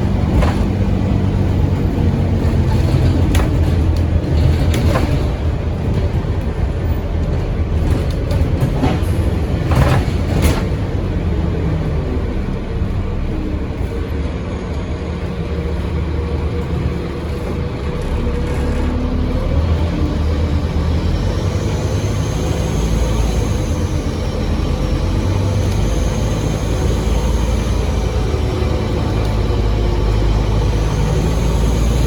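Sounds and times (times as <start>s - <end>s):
bus diesel engine running: 0.0s - 32.0s.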